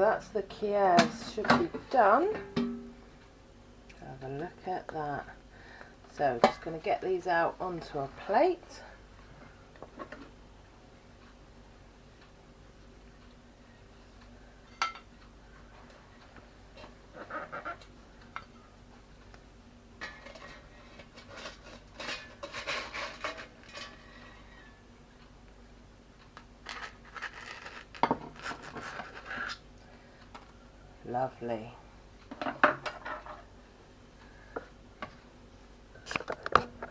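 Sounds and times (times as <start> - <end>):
utensils clattering on dishes: 20.0 - 24.0.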